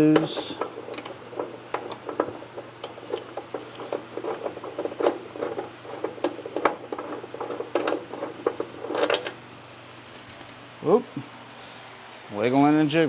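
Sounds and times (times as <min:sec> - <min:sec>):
wrench clicking and rattling: 0:00.2 - 0:09.4.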